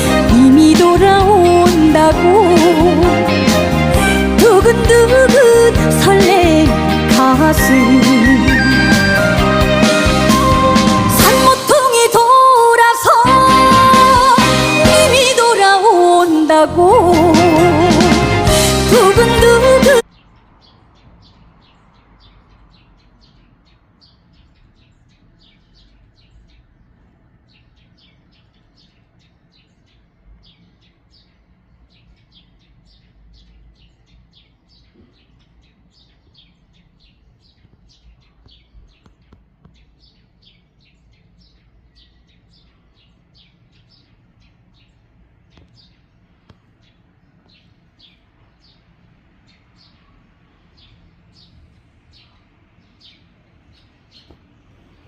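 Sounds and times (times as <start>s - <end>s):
small birds chirping: 18.5s - 55.0s.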